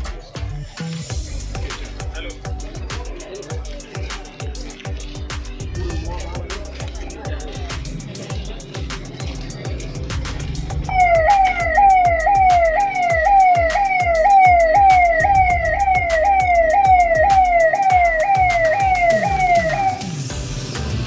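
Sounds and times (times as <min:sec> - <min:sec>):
rapid clicking beat: 0:01.1 - 0:21.0
siren wailing: 0:10.9 - 0:20.3.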